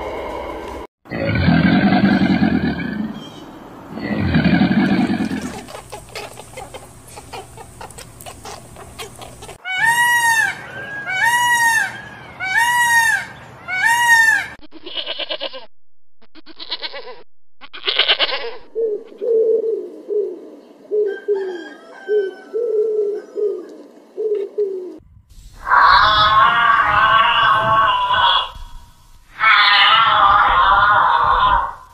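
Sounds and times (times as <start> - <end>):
rising and falling animal calls: 0.0 - 15.7, 16.4 - 25.0, 25.6 - 31.9
ibex buzzy bleats: 4.0 - 5.9, 14.7 - 15.7, 16.4 - 18.7, 25.6 - 28.6
pigeon cooing: 4.0 - 9.6, 18.2 - 25.0.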